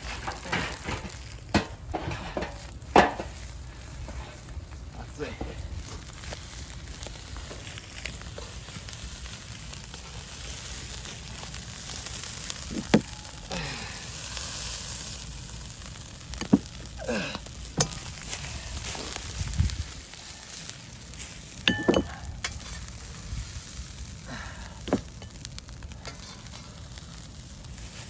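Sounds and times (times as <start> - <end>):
rice sizzling in frying pan: 0.0 - 28.0
metal knocks and scrapes on pan: 0.3 - 3.3.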